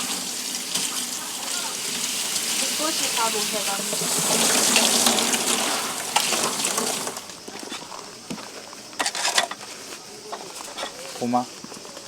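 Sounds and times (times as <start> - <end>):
water running: 0.0 - 7.4.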